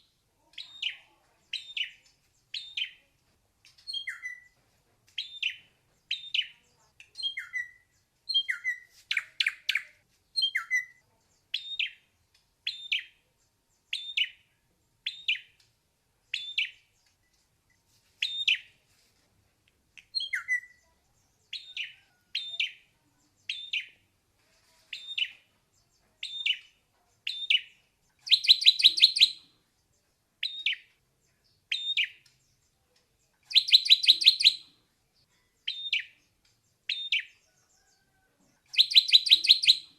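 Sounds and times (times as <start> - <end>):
bird singing clear notes: 0.0 - 3.1, 3.7 - 4.6, 5.2 - 13.2, 20.0 - 24.1, 24.9 - 34.8, 35.5 - 39.9.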